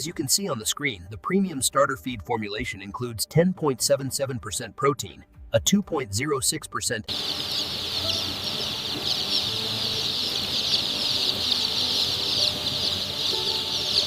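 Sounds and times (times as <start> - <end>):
chicks peeping: 7.1 - 14.0.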